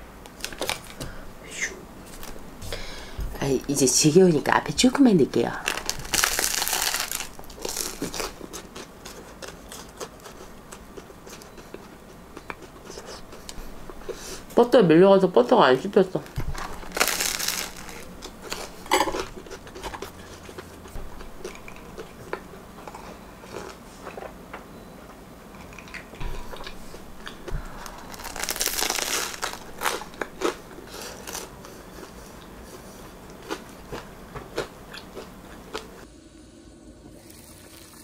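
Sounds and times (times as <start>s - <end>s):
crunching bread crust: 0.3s - 1.2s, 5.4s - 14.2s, 16.2s - 24.4s, 25.7s - 36.0s
wet chewing: 5.6s - 14.5s, 16.3s - 24.4s, 25.6s - 36.0s.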